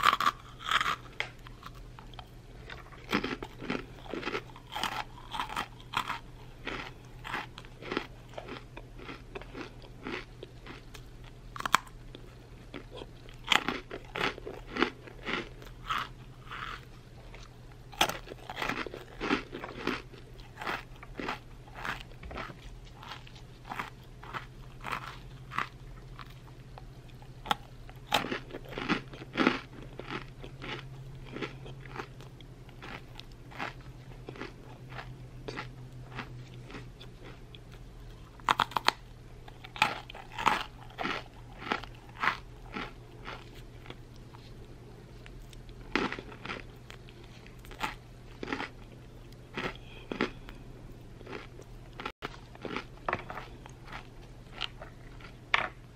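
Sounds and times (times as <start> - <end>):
crunchy snack chewing: 0.0 - 55.9
low steady hum: 0.0 - 55.9.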